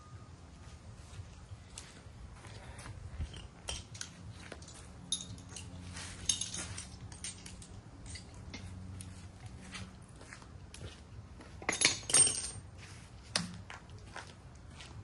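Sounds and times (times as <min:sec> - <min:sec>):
light metallic clicks and clinks: 0:03.1 - 0:09.2, 0:11.6 - 0:12.6.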